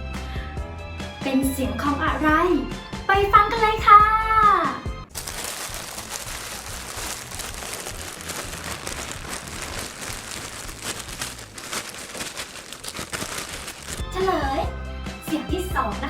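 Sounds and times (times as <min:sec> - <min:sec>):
plastic bag crumpling: 0:05.1 - 0:14.7.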